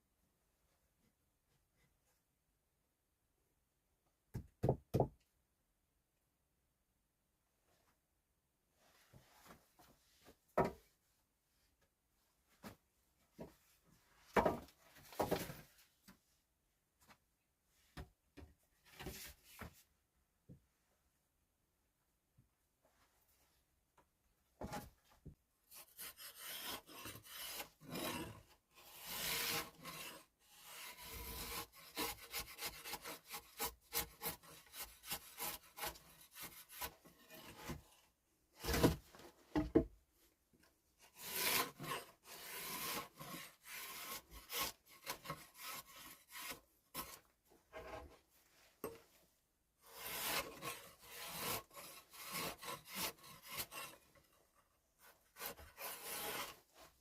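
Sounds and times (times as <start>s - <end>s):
hand tool rasping wood: 25.7s - 37.9s, 41.1s - 48.1s, 49.8s - 54.3s, 55.0s - 56.9s.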